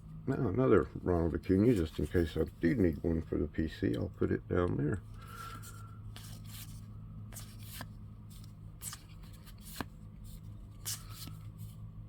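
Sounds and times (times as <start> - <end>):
steady low hum: 0.0 - 12.0
trading cards being flipped: 5.4 - 11.8.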